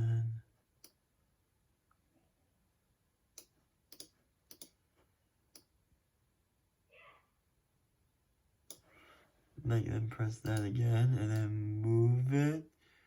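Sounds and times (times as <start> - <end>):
computer mouse clicking: 3.4 - 4.8.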